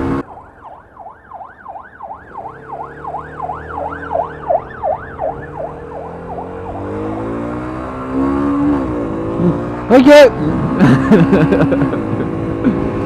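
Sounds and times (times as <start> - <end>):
siren yelping: 0.2 - 7.3
engine idling and revving: 2.5 - 13.0.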